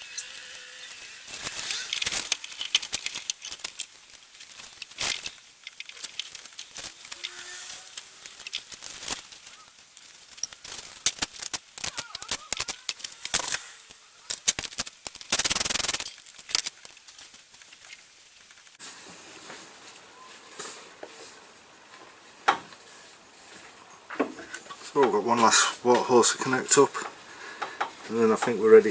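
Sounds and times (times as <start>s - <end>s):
metallic clicks of hand tools: 0.0s - 9.4s, 10.3s - 17.0s.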